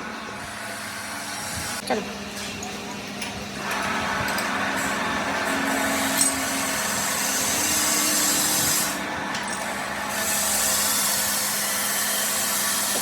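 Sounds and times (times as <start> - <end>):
power tool grinding metal: 3.6 - 13.0.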